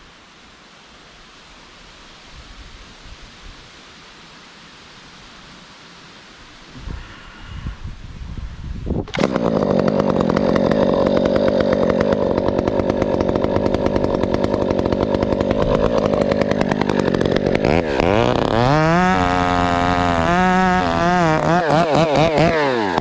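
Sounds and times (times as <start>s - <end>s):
chainsaw cutting at full throttle: 9.0s - 23.0s.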